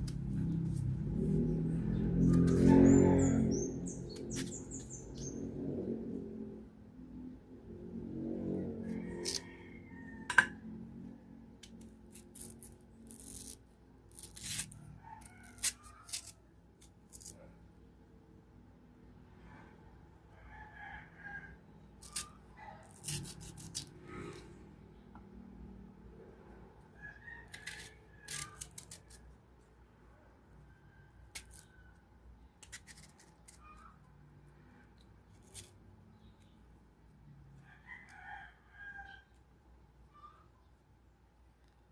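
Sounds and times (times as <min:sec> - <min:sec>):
knife cutting crunchy fruit: 0:11.6 - 0:17.5, 0:22.0 - 0:24.5, 0:27.4 - 0:29.4, 0:31.3 - 0:31.9, 0:32.6 - 0:34.0, 0:35.2 - 0:36.3.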